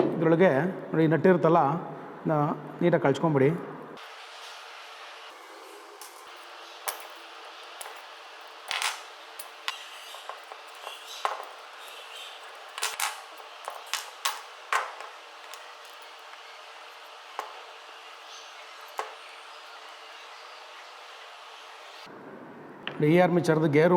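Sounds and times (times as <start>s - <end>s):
tool and metal parts clicking: 6.0s - 19.9s.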